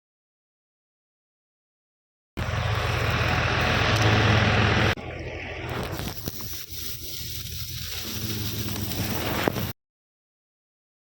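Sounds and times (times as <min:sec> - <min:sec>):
engine hum: 0:02.4 - 0:09.7
thresher rushing noise: 0:02.4 - 0:09.8.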